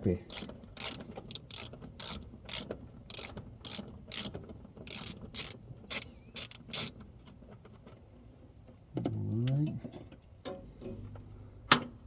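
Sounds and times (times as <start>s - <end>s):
ratchet clicking: 0.3s - 7.0s.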